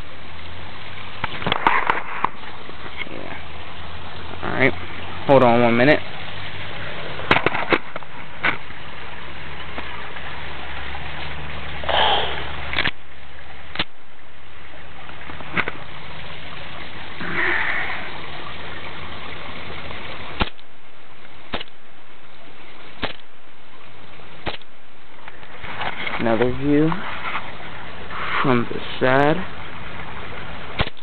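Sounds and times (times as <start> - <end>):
short hissing bursts: 11.8 - 12.5
airsoft pistol shots popping: 23.0 - 23.2, 30.8 - 31.0.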